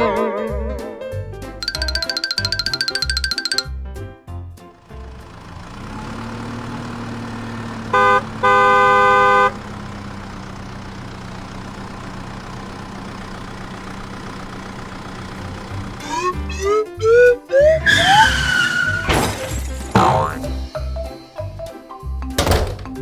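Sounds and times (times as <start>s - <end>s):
cartoon engine hum: 0.0s - 3.7s, 20.0s - 20.6s
rising sliding tones: 0.0s - 3.7s
horn honking: 7.9s - 9.8s.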